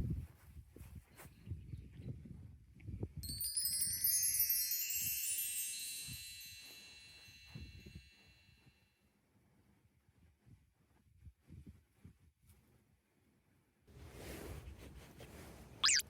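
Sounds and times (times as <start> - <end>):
chimes ringing: 3.2 - 8.3.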